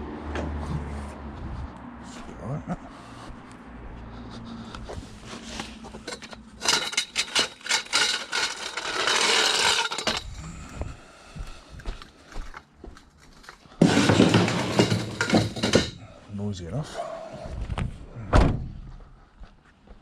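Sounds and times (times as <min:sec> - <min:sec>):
scrape: 0:04.9 - 0:10.2
knocks and clatter: 0:13.8 - 0:16.0.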